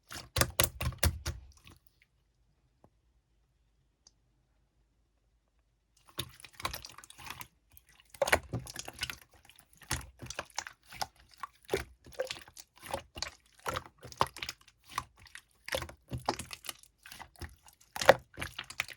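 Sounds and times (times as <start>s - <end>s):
slime squished by hand: 0.0s - 1.8s, 6.0s - 18.9s.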